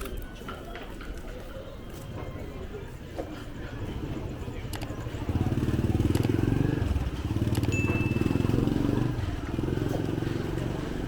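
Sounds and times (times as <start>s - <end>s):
motor scooter engine passing: 3.7s - 11.0s.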